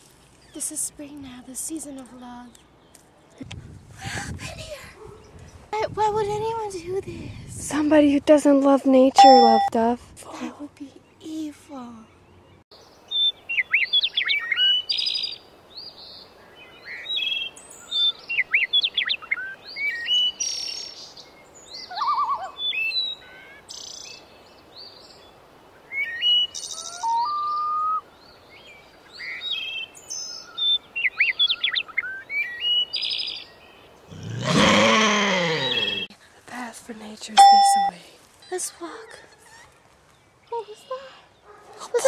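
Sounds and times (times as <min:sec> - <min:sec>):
songbirds chirping and trilling: 0:00.1 - 0:03.9, 0:04.7 - 0:42.0
drawn-out voice-like call: 0:34.1 - 0:36.1.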